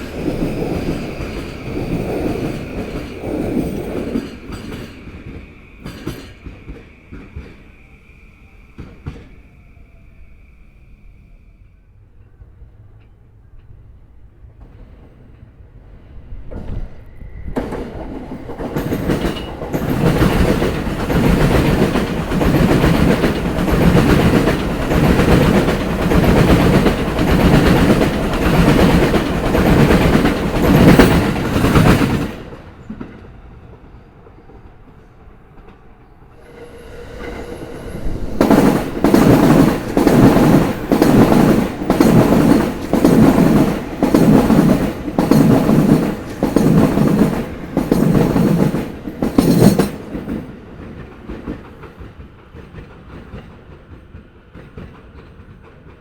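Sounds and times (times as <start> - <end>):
train wheels clattering over rail joints: 17.6 - 33.2, 38.3 - 56.0.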